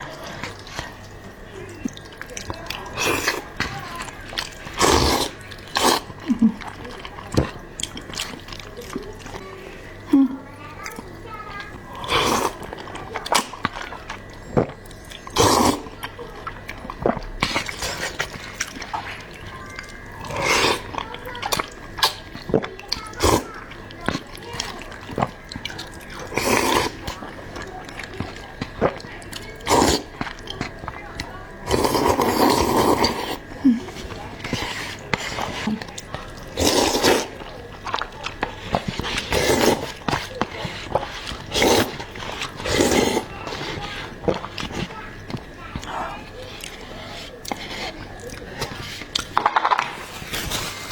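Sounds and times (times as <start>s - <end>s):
wet chewing mouth clicks: 0.0s - 10.1s, 10.7s - 49.4s
person slurping noodles: 2.8s - 3.6s, 4.4s - 6.8s, 11.9s - 16.0s, 17.0s - 22.2s, 23.2s - 23.8s, 24.6s - 27.2s, 28.1s - 30.9s, 31.6s - 49.3s, 49.9s - 50.9s.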